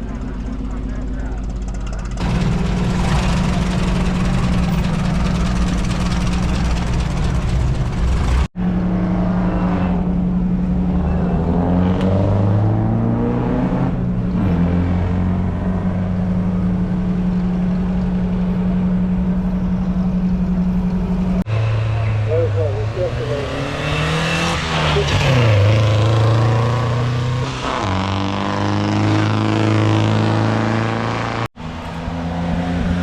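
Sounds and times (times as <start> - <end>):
racing car engines revving: 0.0 - 33.0.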